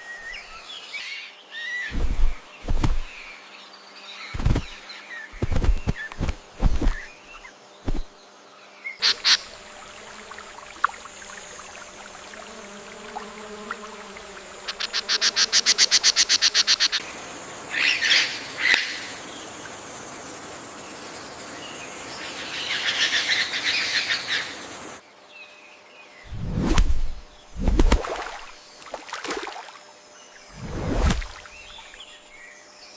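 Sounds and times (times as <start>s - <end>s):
bird calls and chirps: 0.0s - 9.7s, 31.3s - 32.9s.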